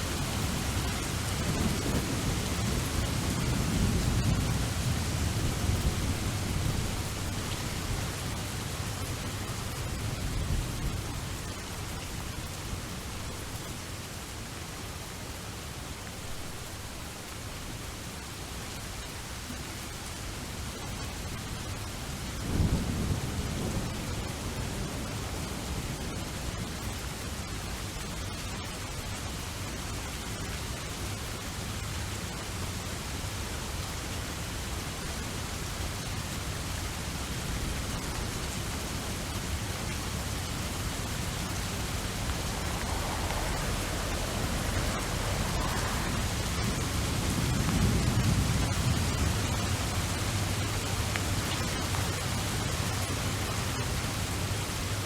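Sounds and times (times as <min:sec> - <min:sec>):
low thunder rumbles: 0:00.0 - 0:12.6, 0:37.4 - 0:53.1
rain hiss: 0:00.0 - 0:55.0.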